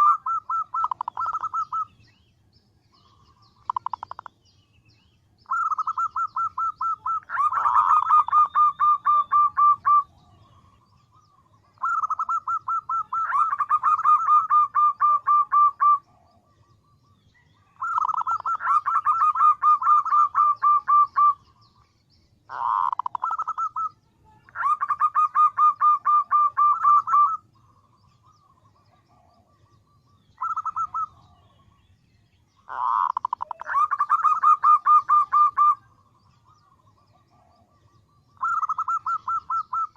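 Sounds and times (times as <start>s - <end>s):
dove cooing: 0.0s - 2.0s, 3.0s - 4.3s, 5.4s - 16.7s, 17.4s - 21.6s, 22.5s - 31.7s, 32.6s - 39.9s.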